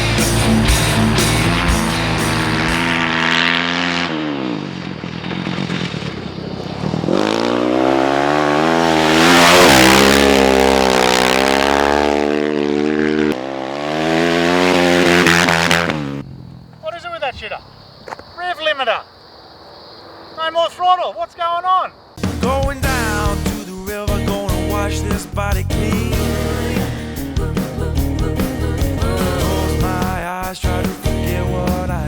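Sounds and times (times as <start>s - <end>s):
motorcycle engine revving: 0.0s - 16.9s, 24.5s - 32.0s.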